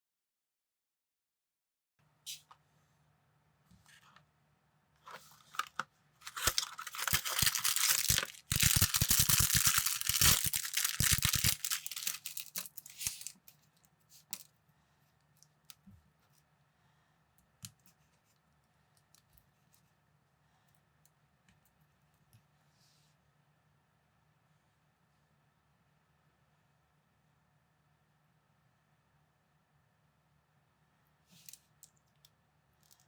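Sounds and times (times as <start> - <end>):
plastic packaging crinkling and tearing: 5.5 - 13.4
plastic bricks clicking together: 6.3 - 13.3.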